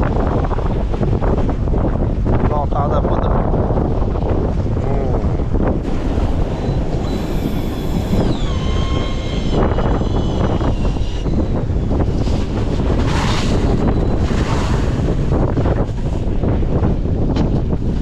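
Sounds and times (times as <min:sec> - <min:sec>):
strong wind on microphone: 0:00.0 - 0:18.0
waves: 0:00.0 - 0:18.0
faint high whine: 0:05.9 - 0:12.0.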